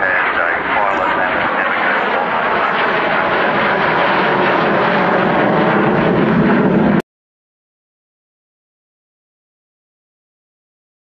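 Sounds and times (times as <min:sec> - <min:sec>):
aircraft engine roaring: 0:00.0 - 0:07.0.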